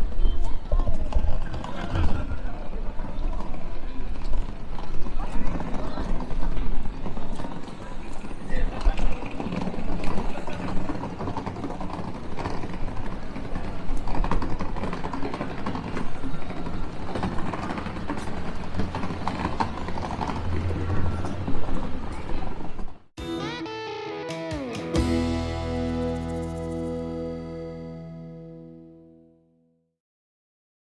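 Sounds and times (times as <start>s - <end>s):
guitar tune: 23.2s - 29.7s.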